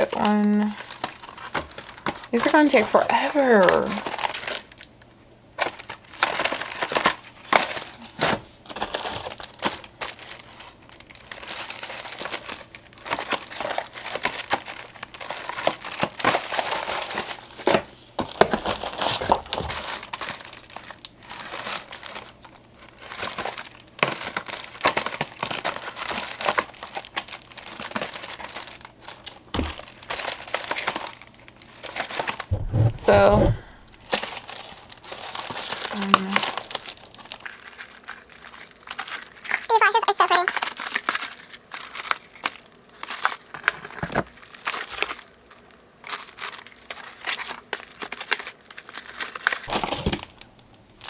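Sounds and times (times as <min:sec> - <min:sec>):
packaging crinkling: 0:00.0 - 0:03.0, 0:03.8 - 0:05.0, 0:05.6 - 0:32.9, 0:33.6 - 0:51.0.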